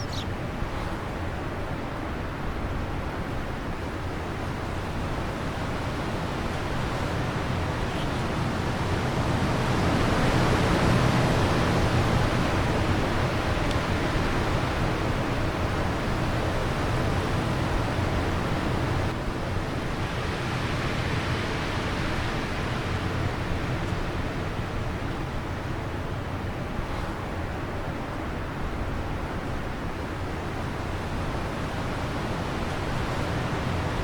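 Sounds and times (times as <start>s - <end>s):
wind blowing: 0.0s - 3.7s.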